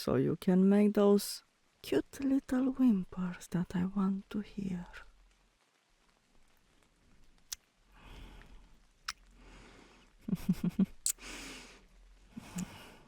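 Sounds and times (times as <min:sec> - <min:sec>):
breathy sighs: 0:07.9 - 0:08.7
lip smacks: 0:08.4 - 0:09.4, 0:10.9 - 0:11.3
woman kissing: 0:09.0 - 0:09.3, 0:11.0 - 0:11.3.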